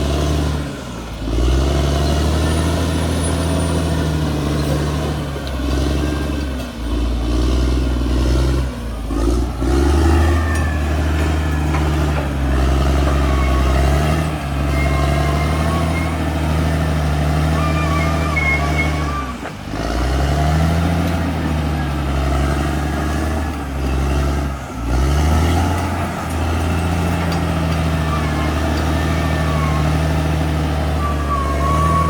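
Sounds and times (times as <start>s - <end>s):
bulldozer diesel engine under load: 0.0s - 32.0s
faint metallic squealing: 9.9s - 19.5s, 26.4s - 32.0s.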